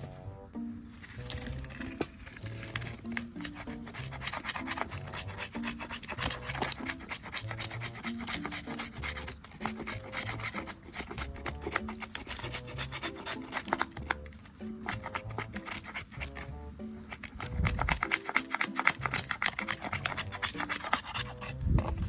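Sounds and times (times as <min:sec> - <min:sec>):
background music with bass: 0:00.0 - 0:13.2.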